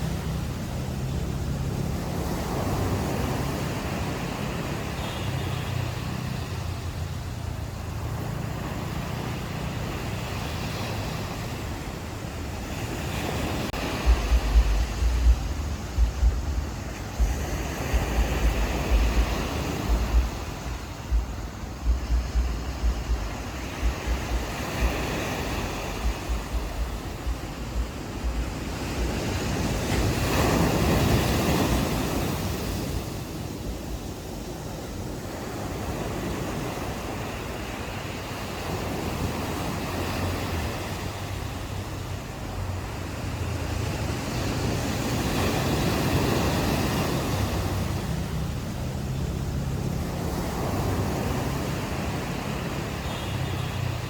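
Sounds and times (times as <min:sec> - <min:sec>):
ocean waves on beach: 0:00.0 - 0:54.0
wind buffeting microphone: 0:00.0 - 0:54.0
low steady hum: 0:13.9 - 0:25.0.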